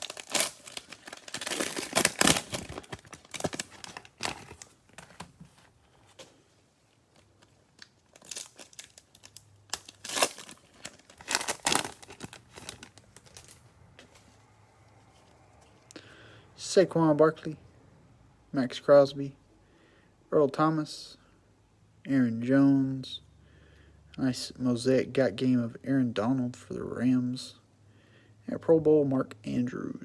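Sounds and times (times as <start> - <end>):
cellophane wrapper crinkling: 0.0 - 5.7, 7.1 - 13.7.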